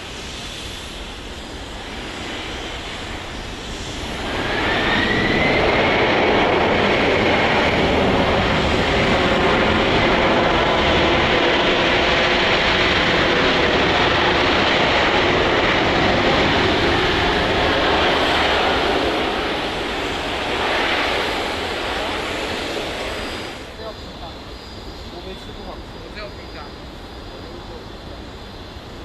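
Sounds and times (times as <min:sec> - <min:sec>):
jet engines rumbling with whine: 0:00.0 - 0:29.0.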